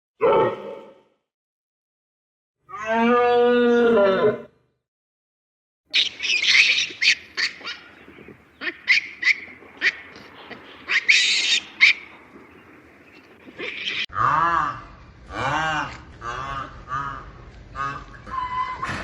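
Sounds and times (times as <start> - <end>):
birds high calls: 5.9 - 14.1.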